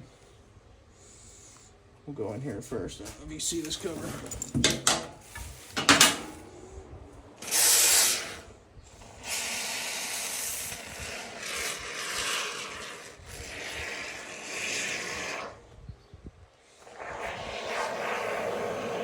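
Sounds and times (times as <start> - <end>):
aerosol foam spraying hiss: 7.4 - 15.6, 16.7 - 19.0.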